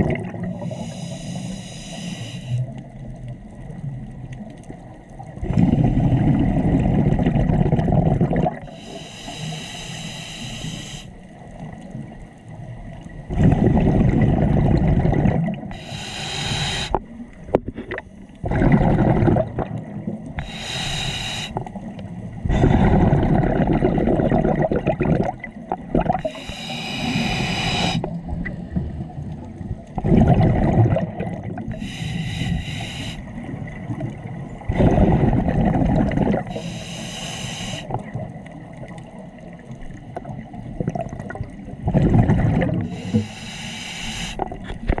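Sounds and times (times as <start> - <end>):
bubbling exhalation underwater: 0.0 - 0.5, 5.4 - 8.7, 13.3 - 15.7, 17.7 - 20.2, 22.4 - 26.3, 30.0 - 31.8, 34.7 - 36.6, 40.7 - 43.2
hissing regulator inhalation: 0.6 - 2.6, 8.7 - 11.2, 15.7 - 17.0, 20.4 - 21.7, 26.2 - 28.1, 31.7 - 33.3, 36.4 - 38.0, 42.8 - 44.5.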